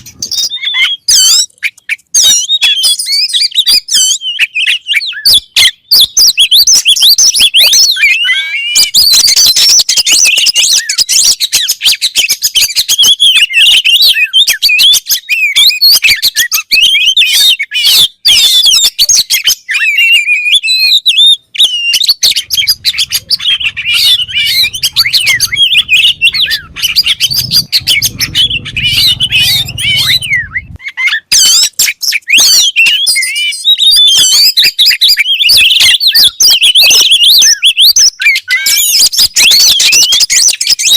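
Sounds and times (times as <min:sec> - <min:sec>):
bird singing whistles and trills: 0:00.0 - 0:40.9
low hum: 0:22.2 - 0:30.8.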